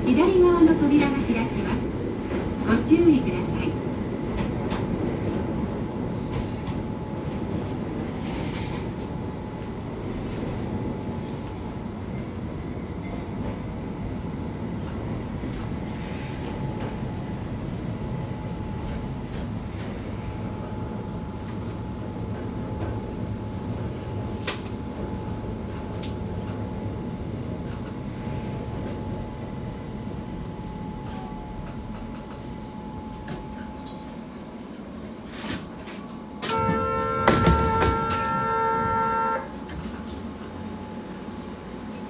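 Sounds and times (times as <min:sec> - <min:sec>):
train running rumble: 0:00.0 - 0:42.0.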